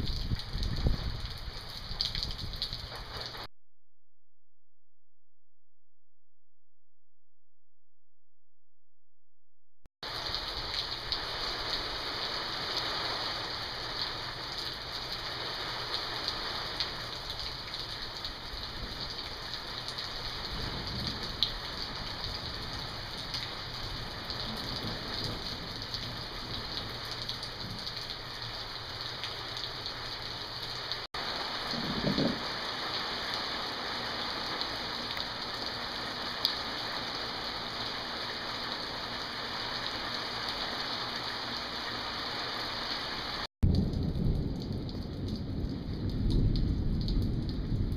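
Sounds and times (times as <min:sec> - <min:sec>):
heavy rain pouring: 0:00.0 - 0:03.5, 0:10.0 - 0:47.9
low thunder rumble: 0:20.1 - 0:28.4, 0:31.4 - 0:32.6, 0:43.6 - 0:47.9.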